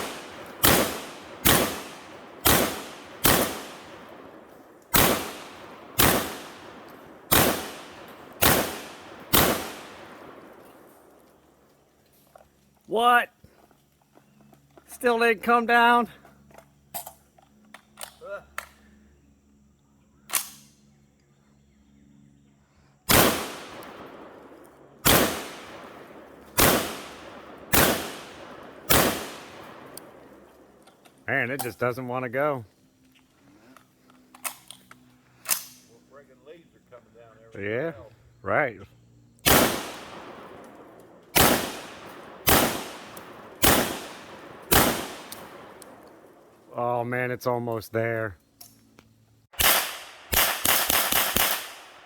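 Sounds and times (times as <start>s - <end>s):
loud echoing gunshots: 0.0s - 10.6s, 23.1s - 30.5s, 39.4s - 46.4s, 49.6s - 52.0s
sharp crack: 0.0s - 11.3s, 23.1s - 31.7s, 39.4s - 46.6s, 49.5s - 52.0s.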